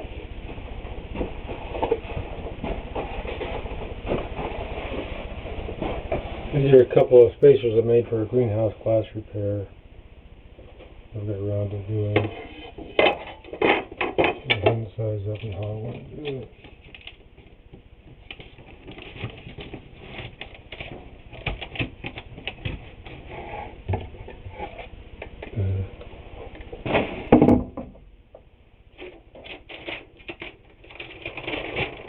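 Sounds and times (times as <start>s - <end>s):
small objects knocking and rustling: 28.9s - 32.0s.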